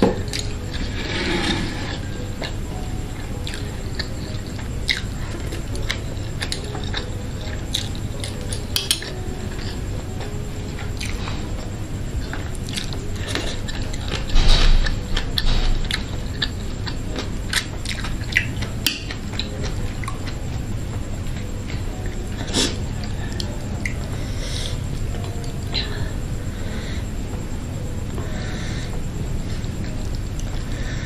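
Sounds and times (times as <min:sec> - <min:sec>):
close chewing with wet mouth sounds: 0:01.9 - 0:26.3
metal chopsticks clicking on bowl: 0:07.7 - 0:09.1.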